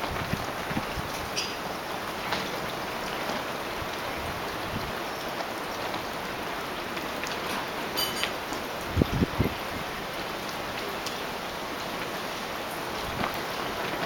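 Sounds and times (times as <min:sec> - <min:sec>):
wind gusts rumbling on microphone: 0:00.0 - 0:14.0
wind hiss: 0:08.8 - 0:10.4.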